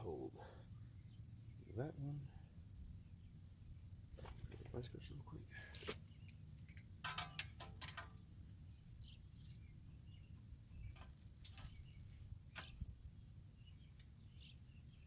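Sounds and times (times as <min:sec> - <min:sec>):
metallic clinks of hand tools: 0:06.6 - 0:08.1
faint bird chirps: 0:08.7 - 0:15.0.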